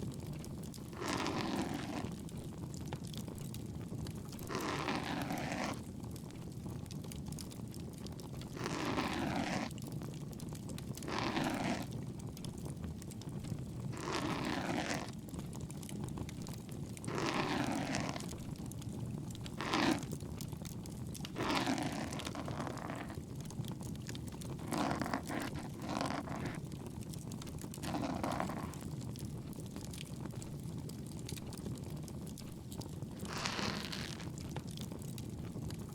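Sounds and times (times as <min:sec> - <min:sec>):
ear pick scraping inside ear: 0:19.6 - 0:20.2, 0:21.3 - 0:23.2, 0:24.6 - 0:26.6.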